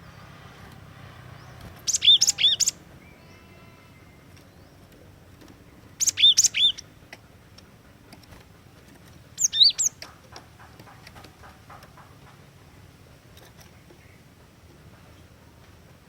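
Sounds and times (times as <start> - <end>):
tit calling: 1.9 - 3.0.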